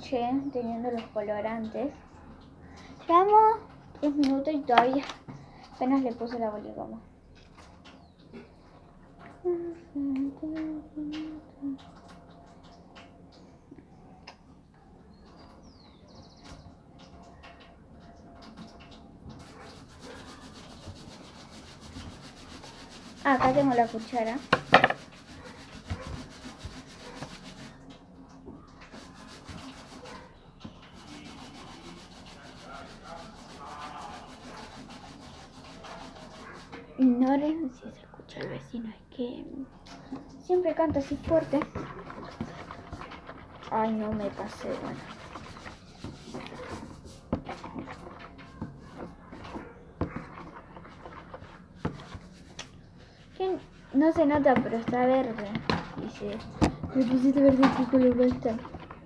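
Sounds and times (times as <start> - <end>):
spoon scraping slime in bowl: 18.6 - 27.9, 28.6 - 37.0, 40.2 - 59.0.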